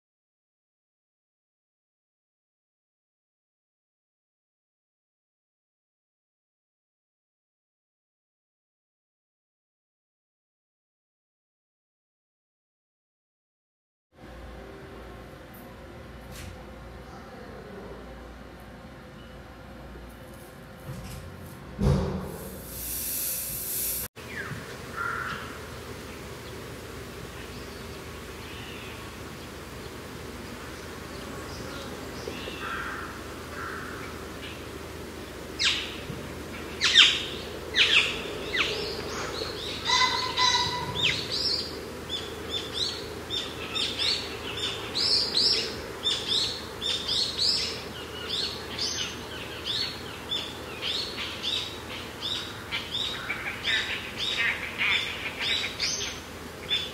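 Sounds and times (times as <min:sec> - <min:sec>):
brief hiss: 0:22.1 - 0:24.1
birds chirping: 0:24.2 - 0:56.9.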